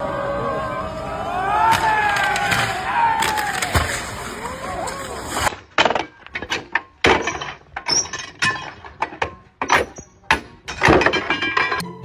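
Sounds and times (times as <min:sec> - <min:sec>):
irregular knocks and clatters: 0:05.5 - 0:11.8.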